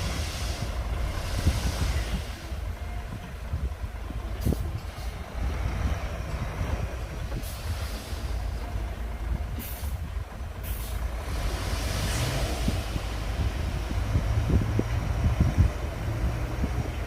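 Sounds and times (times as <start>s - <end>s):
hiss bursts: 0.0s - 2.7s, 7.3s - 8.7s, 9.6s - 13.9s
diesel machinery rumbling: 0.0s - 17.0s.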